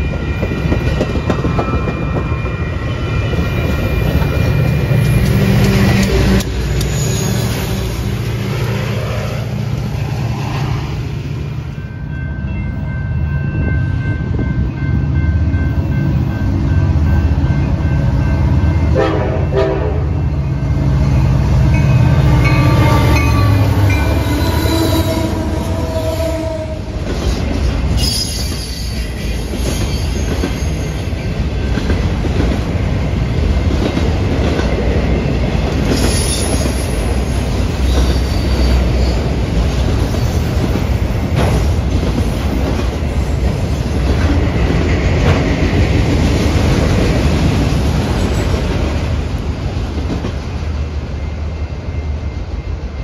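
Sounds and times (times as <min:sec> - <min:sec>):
train cars clickety-clack: 0:00.0 - 0:09.3, 0:20.9 - 0:53.0
high wheel squeals: 0:01.6 - 0:08.4, 0:22.2 - 0:26.7, 0:35.9 - 0:39.4
locomotive horn: 0:18.9 - 0:20.4, 0:21.8 - 0:26.9.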